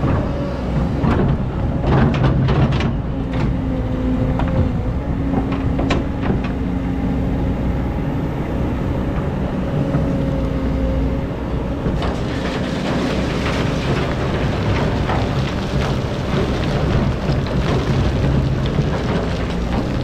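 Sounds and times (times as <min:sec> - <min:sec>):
excavator diesel engine: 0:00.0 - 0:20.0
sand and stones scraping: 0:12.0 - 0:20.0.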